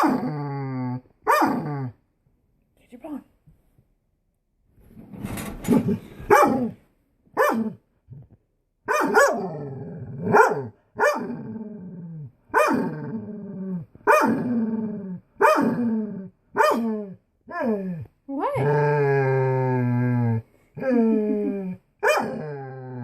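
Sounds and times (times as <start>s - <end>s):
dog barking: 1.3s - 1.7s, 6.3s - 6.8s, 7.4s - 7.8s, 8.9s - 9.5s, 10.2s - 11.4s, 12.5s - 12.9s, 14.0s - 14.4s, 15.4s - 15.8s, 16.6s - 16.9s, 22.0s - 22.4s.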